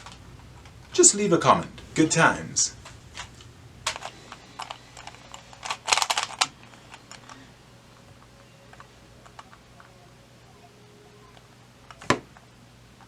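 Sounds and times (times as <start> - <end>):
small hard objects clicking: 0.0 - 7.5.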